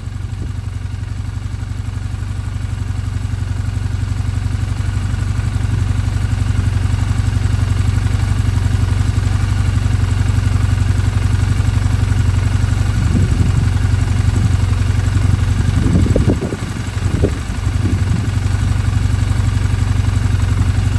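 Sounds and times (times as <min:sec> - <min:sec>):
motorcycle engine idling: 0:00.0 - 0:20.9.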